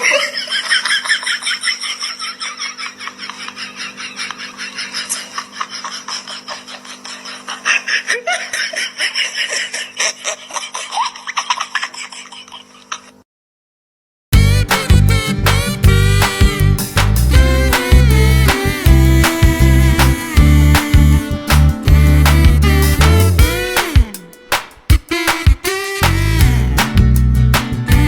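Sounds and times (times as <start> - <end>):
high-pitched rapid laughing: 0.0 - 13.1, 14.4 - 26.9
steady low hum: 14.4 - 24.1.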